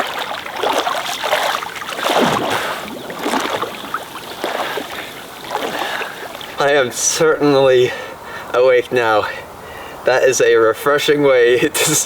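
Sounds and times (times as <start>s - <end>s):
water splashing around swimmer: 0.0s - 7.0s.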